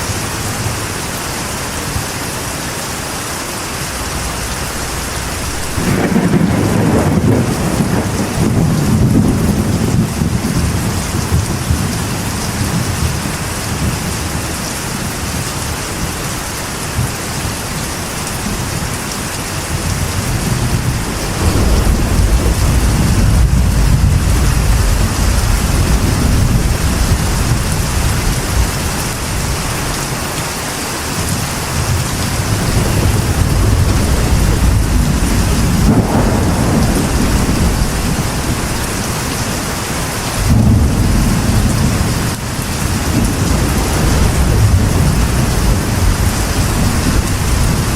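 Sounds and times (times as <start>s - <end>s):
rain on a metal roof: 0.0s - 47.9s
thunder rolling: 3.7s - 14.4s, 19.7s - 30.1s, 31.3s - 47.9s.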